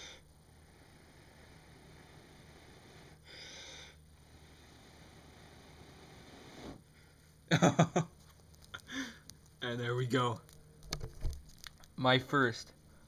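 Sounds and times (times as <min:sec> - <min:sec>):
person blowing into tinder: 0:00.0 - 0:06.9
quiet breathing: 0:00.0 - 0:07.4, 0:08.8 - 0:09.3
breathy voice sounds: 0:08.8 - 0:09.2.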